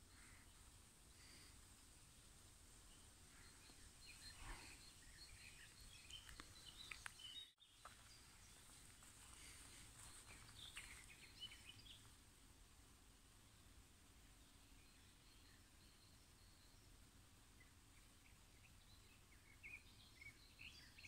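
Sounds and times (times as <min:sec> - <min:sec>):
birds chirping and warbling: 0:00.0 - 0:12.2, 0:17.6 - 0:21.0
low background hiss: 0:00.0 - 0:21.0.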